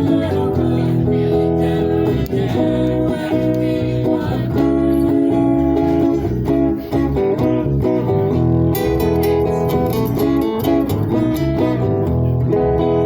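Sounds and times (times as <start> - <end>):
person singing: 0.0 - 7.9
acoustic guitar strumming: 0.0 - 13.0.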